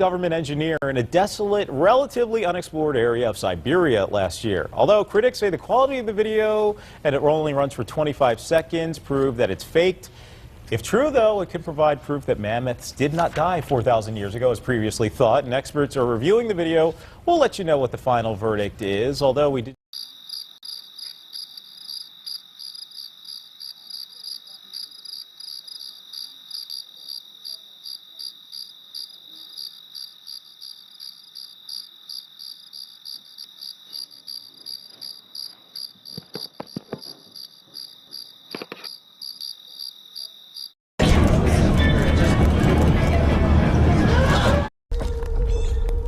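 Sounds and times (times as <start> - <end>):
insects trilling: 20.0 - 40.8.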